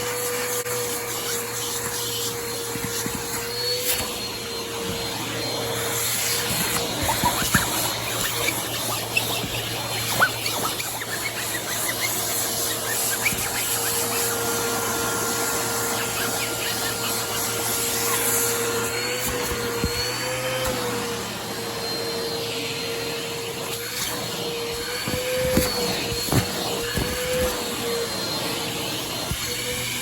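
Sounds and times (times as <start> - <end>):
vacuum motor running: 0.0 - 30.0.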